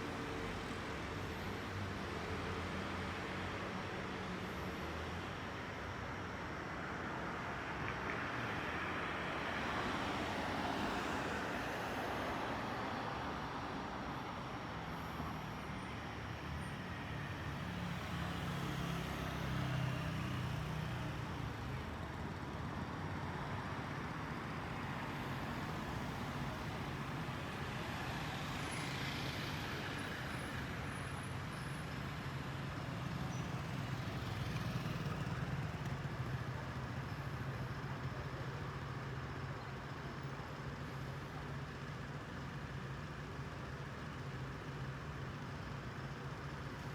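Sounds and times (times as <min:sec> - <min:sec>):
passing vehicle engines humming: 0:08.5 - 0:43.4.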